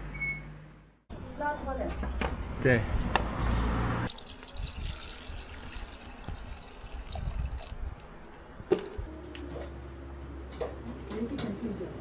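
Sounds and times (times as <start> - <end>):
water running: 4.1 - 8.4.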